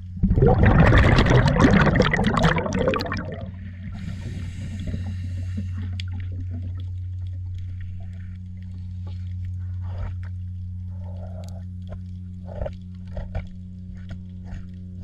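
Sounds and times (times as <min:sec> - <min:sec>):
water splashing and gurgling: 0:00.0 - 0:08.0.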